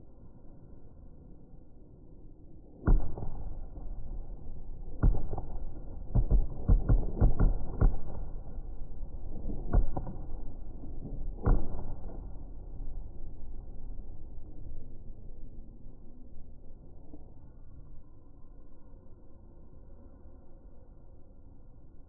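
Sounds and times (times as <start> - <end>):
fireworks rumbling: 2.8 - 14.8
fireworks bangs: 4.8 - 12.5.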